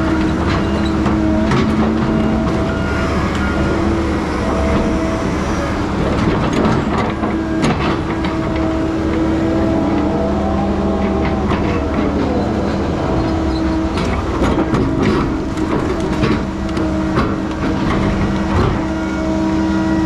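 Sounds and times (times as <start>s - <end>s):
diesel machine engine and hydraulics: 0.0s - 20.0s.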